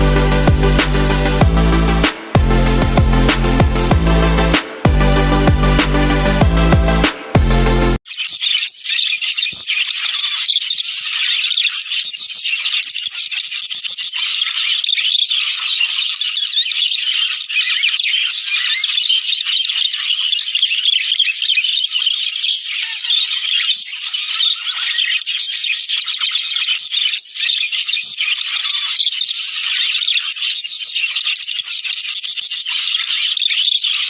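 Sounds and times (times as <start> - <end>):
budgerigars chattering and warbling: 8.2 - 34.0.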